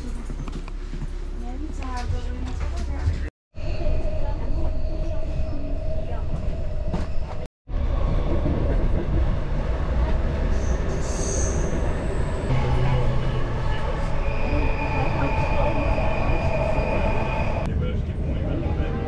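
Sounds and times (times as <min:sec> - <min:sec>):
train rumble inside carriage: 0:00.0 - 0:19.0
train wheels squealing: 0:10.5 - 0:12.5, 0:14.0 - 0:17.6.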